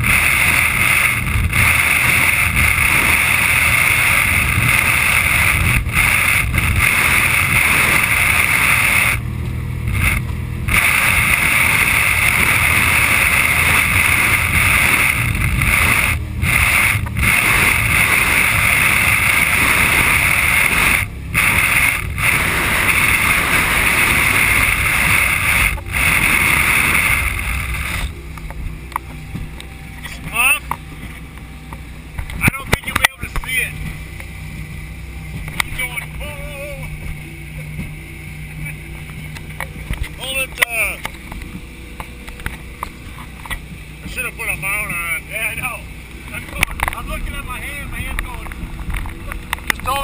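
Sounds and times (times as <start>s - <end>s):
wind rushing: 0.0s - 29.6s
water rushing past boat: 0.0s - 50.0s.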